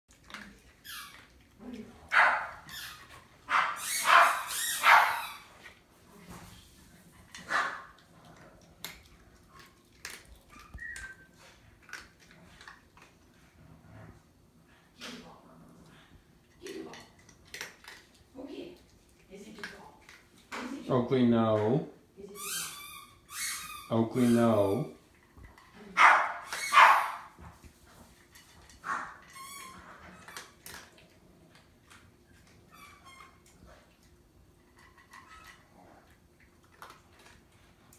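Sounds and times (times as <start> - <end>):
dog sounds: 0.1 - 20.7, 22.3 - 37.9
dog barking: 2.1 - 2.6, 3.5 - 5.3, 7.5 - 7.9, 26.0 - 27.3
dog whining: 2.4 - 5.5, 10.4 - 11.6, 22.4 - 25.0, 26.2 - 27.3.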